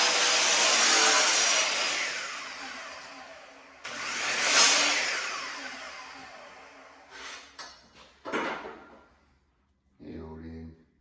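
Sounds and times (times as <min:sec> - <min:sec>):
electric saw motor whining: 0:00.0 - 0:07.2
knocks and rustles: 0:07.6 - 0:09.1.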